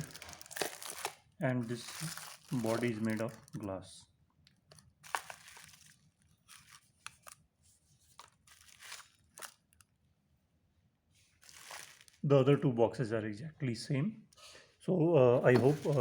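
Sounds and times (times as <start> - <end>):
rustling: 0.0 - 3.6, 4.7 - 9.8, 11.2 - 12.2, 15.4 - 16.0
glass lunch box handling: 8.2 - 9.6, 15.4 - 16.0.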